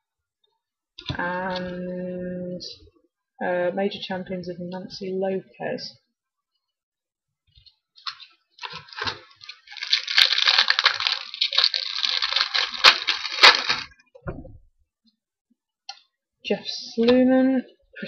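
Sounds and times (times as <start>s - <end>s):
wrapper tearing and crinkling: 8.0s - 14.0s.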